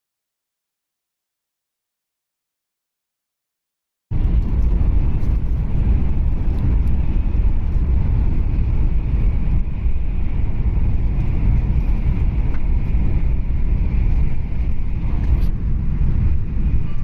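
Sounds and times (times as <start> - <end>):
train rumble inside cabin: 4.1 - 17.0.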